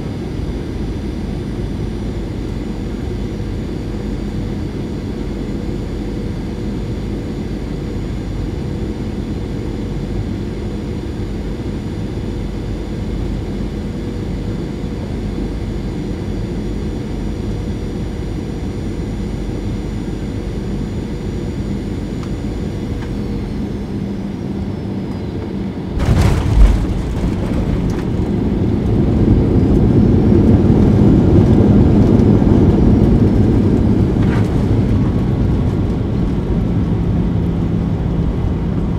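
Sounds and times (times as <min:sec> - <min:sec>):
aircraft cabin engine whine: 0:00.0 - 0:38.9
reverse thrust roar: 0:26.0 - 0:36.0.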